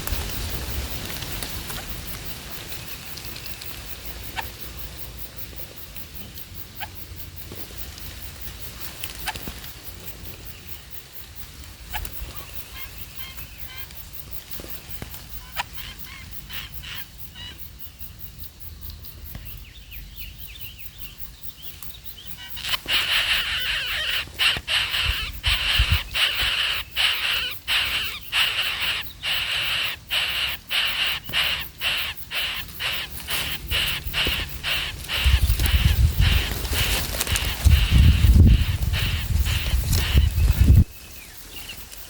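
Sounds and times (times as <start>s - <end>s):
birds calling shrilly: 11.8s - 17.7s, 19.4s - 42.0s.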